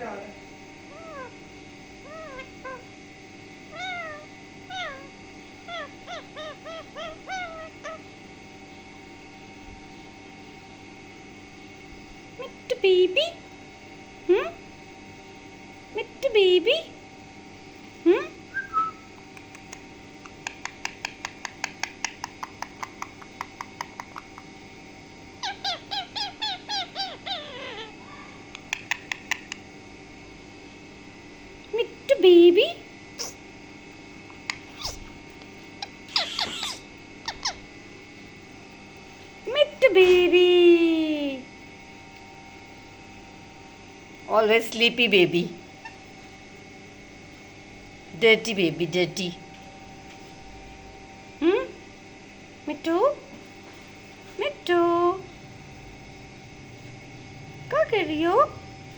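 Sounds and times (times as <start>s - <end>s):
parrot giving meow-like calls: 0.9s - 1.4s, 2.0s - 2.9s, 3.7s - 8.1s, 25.4s - 28.4s, 35.8s - 37.6s
parrot clicking chirps: 19.1s - 24.5s, 28.5s - 29.6s, 35.8s - 37.6s.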